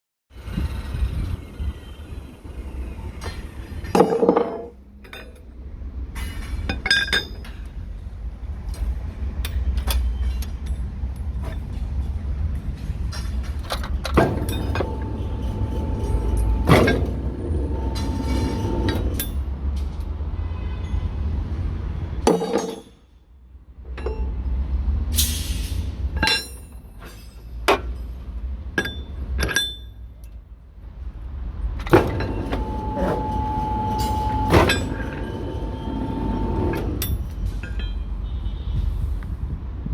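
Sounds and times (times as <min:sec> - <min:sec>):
steel rebar clanking: 0:13.0 - 0:19.5, 0:22.2 - 0:23.0, 0:25.2 - 0:30.0, 0:31.8 - 0:38.3
machine whining: 0:14.2 - 0:19.4, 0:31.8 - 0:37.4.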